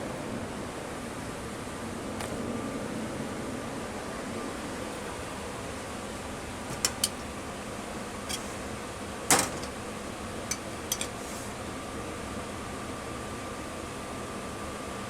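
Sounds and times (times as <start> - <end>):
ventilation fan humming: 0.0 - 15.0
metal utensils clinking: 6.7 - 7.3, 8.3 - 8.5, 9.3 - 9.8, 10.4 - 11.2.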